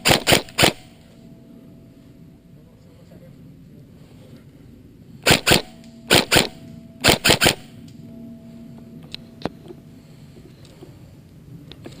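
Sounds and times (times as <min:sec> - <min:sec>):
airsoft gun shots: 0:00.0 - 0:01.0, 0:05.2 - 0:07.7.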